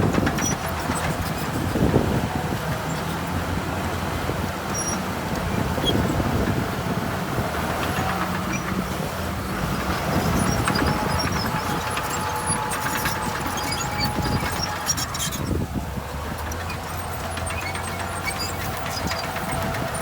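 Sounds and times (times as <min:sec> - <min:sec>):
diesel machinery engine hum: 0:00.0 - 0:20.0.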